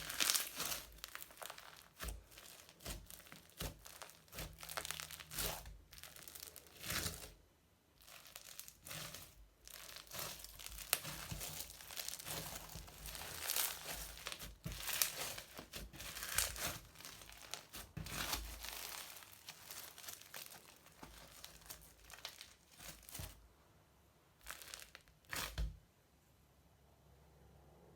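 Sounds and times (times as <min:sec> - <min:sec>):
crunchy slime crackling: 0:00.0 - 0:23.5, 0:24.3 - 0:25.8.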